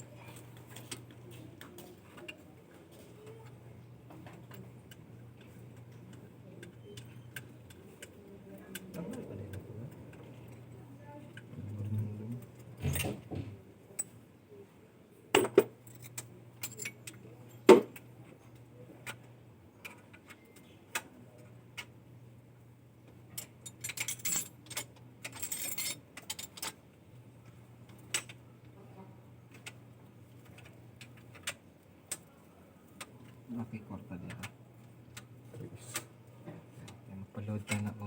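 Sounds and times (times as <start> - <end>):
faint low hum: 0.0 - 38.0
metallic clinks and clatter: 15.4 - 17.2, 23.4 - 26.8.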